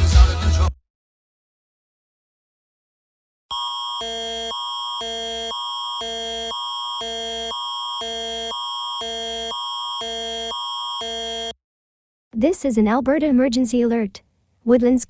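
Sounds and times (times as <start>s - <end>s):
two-tone emergency alert signal: 3.5s - 11.6s.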